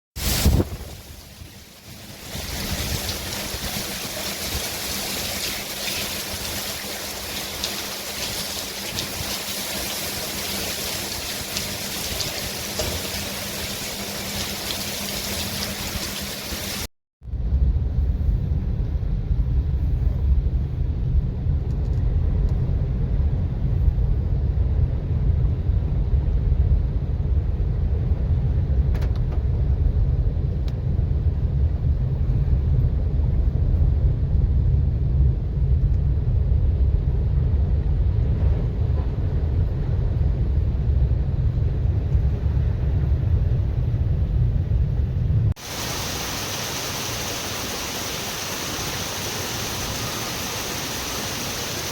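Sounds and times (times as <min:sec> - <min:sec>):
pouring rain hiss: 0:00.2 - 0:16.9, 0:45.6 - 0:51.9
wind rumble on microphone: 0:00.2 - 0:51.9.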